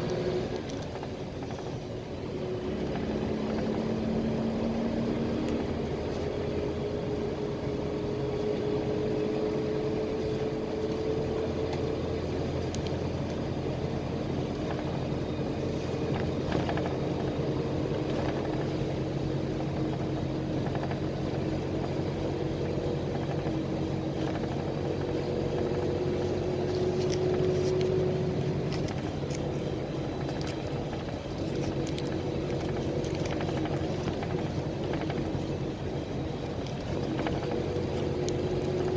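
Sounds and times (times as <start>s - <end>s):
bus engine drone: 0.0s - 38.9s
road noise: 0.0s - 38.9s
light rattles: 7.0s - 38.9s.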